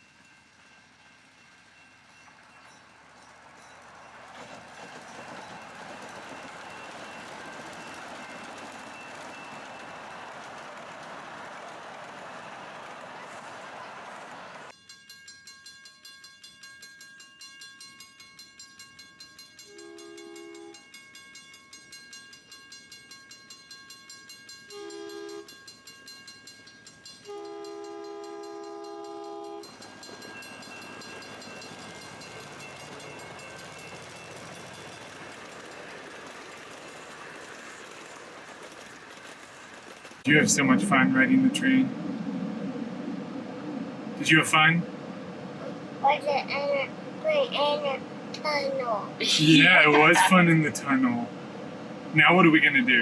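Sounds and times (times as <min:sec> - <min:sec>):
train rushing noise: 0:00.0 - 0:14.7, 0:27.2 - 0:53.0
train wheels clickety-clack: 0:00.0 - 0:14.8, 0:26.6 - 0:40.5
two-tone train horn blasts: 0:19.6 - 0:20.8, 0:24.7 - 0:25.6, 0:27.2 - 0:29.7.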